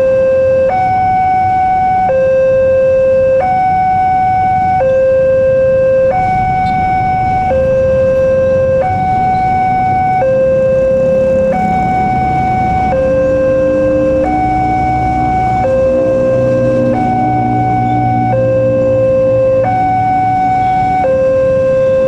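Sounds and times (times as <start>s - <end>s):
level crossing two-tone alarm: 0.0s - 22.0s
low rumble: 6.1s - 18.2s.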